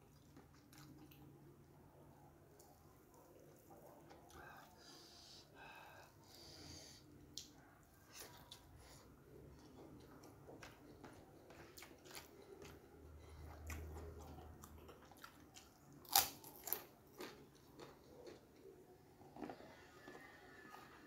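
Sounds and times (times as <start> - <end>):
chewing food: 0.0 - 1.4, 7.3 - 21.0
cracker crunching: 13.5 - 20.8.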